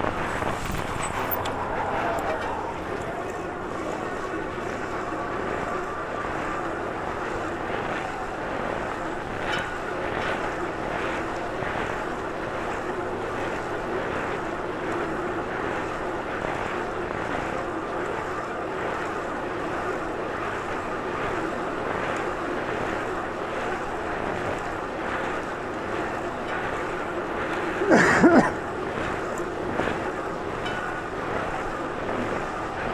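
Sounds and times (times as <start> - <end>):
wind and road rush: 0.0 - 4.8.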